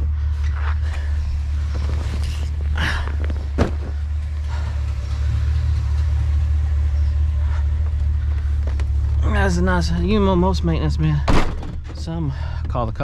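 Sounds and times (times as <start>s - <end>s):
truck engine rumbling: 0.0s - 13.0s.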